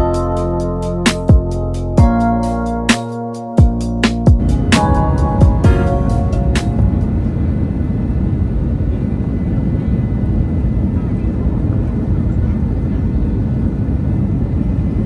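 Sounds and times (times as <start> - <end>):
jet engine low rumble: 4.3 - 15.0.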